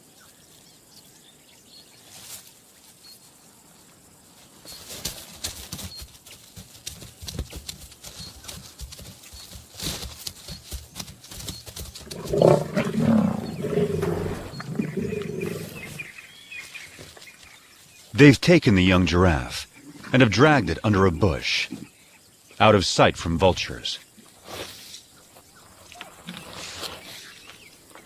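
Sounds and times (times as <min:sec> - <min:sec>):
lions growling: 0:12.0 - 0:16.1.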